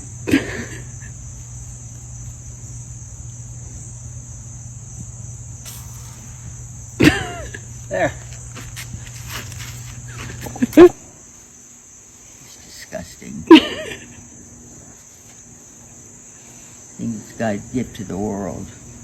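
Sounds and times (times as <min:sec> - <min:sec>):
low steady hum: 0:00.0 - 0:12.4
crickets trilling: 0:00.0 - 0:19.0.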